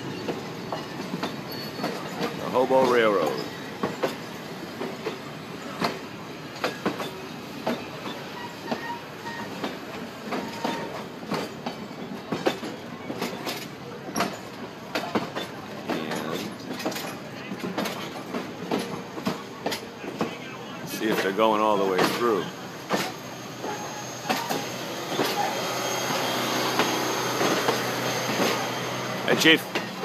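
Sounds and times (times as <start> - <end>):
train wheels clicking on rail joints: 0.0 - 30.0.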